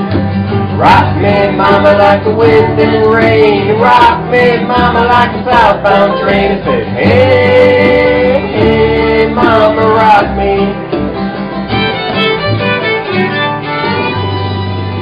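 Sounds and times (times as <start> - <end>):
strummed acoustic guitar: 0.0 - 15.0
fiddle playing: 5.8 - 7.0, 11.2 - 15.0.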